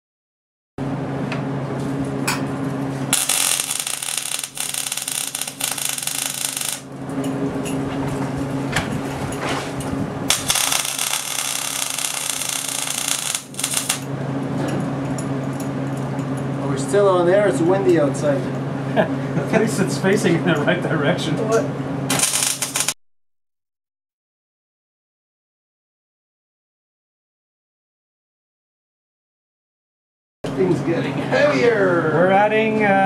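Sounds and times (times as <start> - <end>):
steady hum: 0.8 - 23.0
welding arc crackling buzz: 2.6 - 7.8, 10.2 - 14.2, 22.1 - 23.0.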